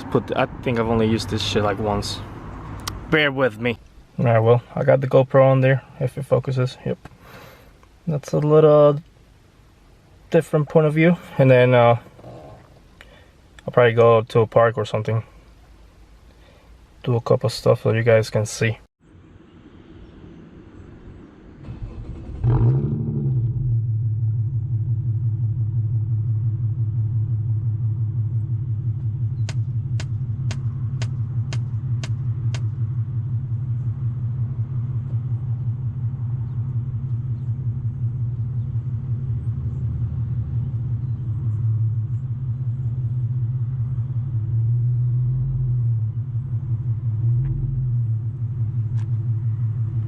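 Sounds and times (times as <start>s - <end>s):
car engine starting and idling: 0.0s - 15.8s, 20.8s - 50.0s
sharp ticks: 29.4s - 32.7s.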